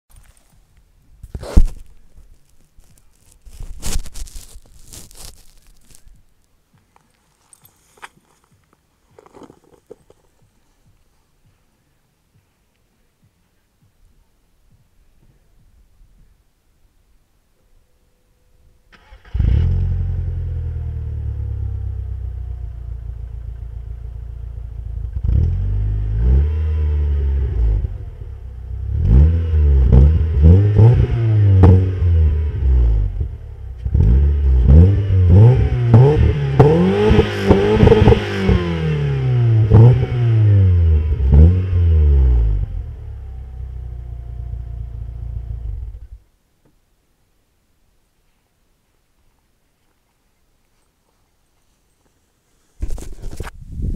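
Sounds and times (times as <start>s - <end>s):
exhaust cracks: 1.2s - 6.3s, 28.8s - 44.1s
car engine idling and revving: 19.0s - 46.2s.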